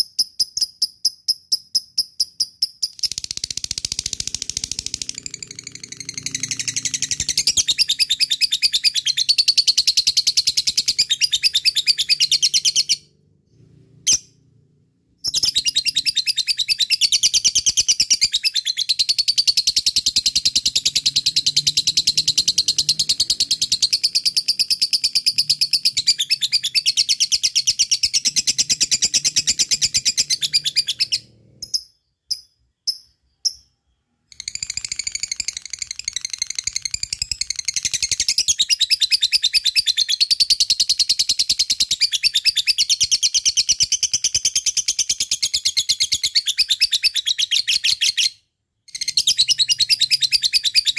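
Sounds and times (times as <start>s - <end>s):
lovebird chattering: 0.2s - 13.0s.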